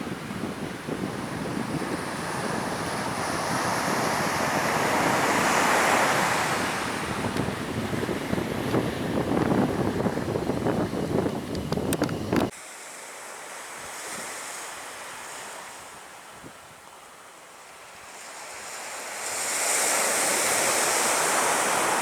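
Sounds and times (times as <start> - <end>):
wind buffeting microphone: 0.0 - 12.5
high engine whine: 6.4 - 12.5.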